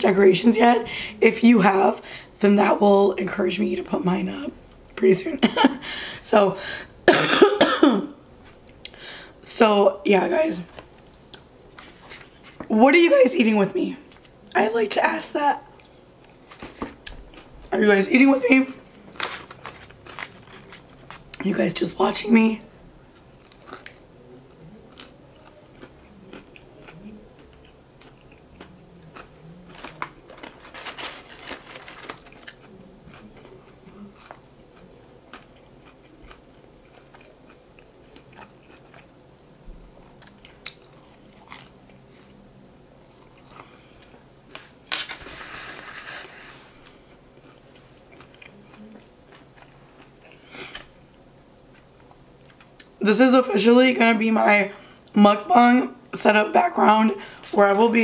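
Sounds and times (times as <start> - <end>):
person chewing crunchy food: 19.0 - 21.4, 23.1 - 24.0, 24.9 - 39.2, 40.1 - 42.4, 43.1 - 50.9.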